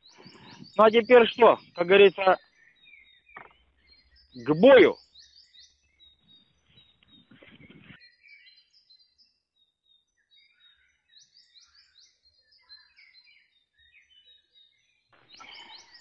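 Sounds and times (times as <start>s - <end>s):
small birds chirping and trilling: 0.0s - 16.0s
brief rustling: 7.0s - 8.0s.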